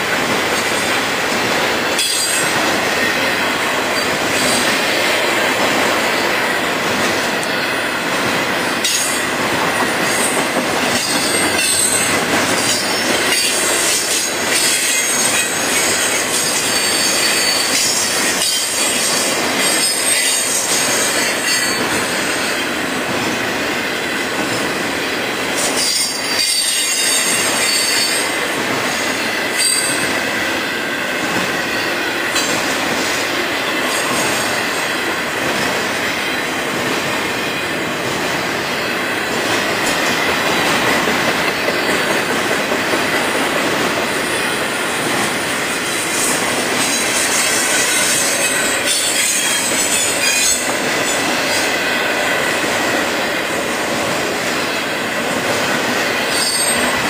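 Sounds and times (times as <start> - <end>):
freight train rumbling and clattering: 0.0 - 57.0.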